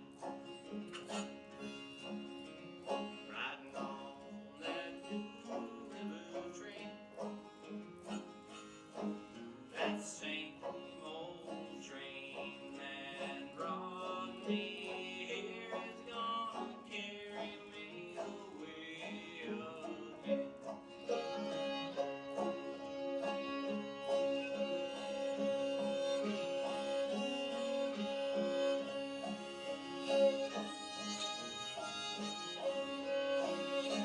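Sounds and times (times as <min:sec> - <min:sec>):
fiddle long held note: 0:00.0 - 0:03.3, 0:19.7 - 0:34.0
guitar picking: 0:00.0 - 0:15.0, 0:17.7 - 0:34.0
banjo picking: 0:00.0 - 0:34.0.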